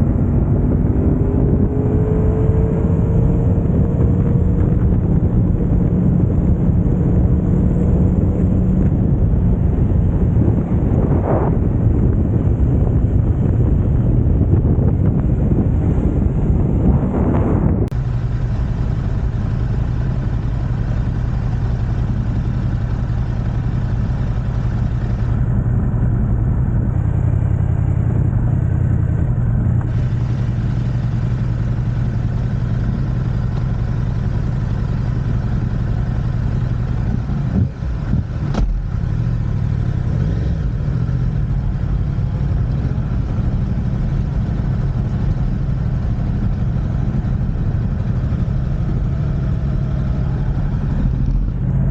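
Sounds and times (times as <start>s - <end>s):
motorcycle engine idling: 17.9s - 51.9s.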